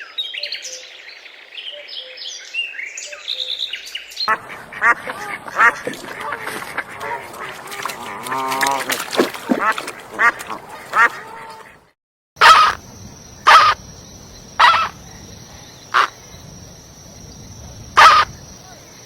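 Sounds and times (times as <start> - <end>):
ducks quacking: 4.3 - 12.8, 13.5 - 13.8, 15.9 - 16.1, 18.0 - 18.3.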